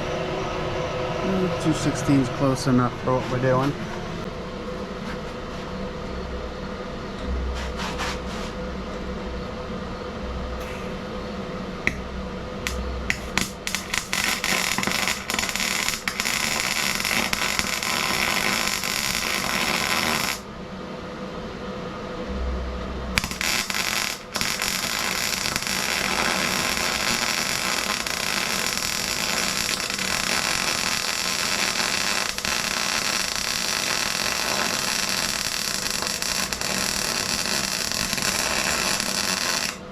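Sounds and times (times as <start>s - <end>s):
welder arc crackling and hissing: 12.6s - 20.5s, 23.2s - 39.9s.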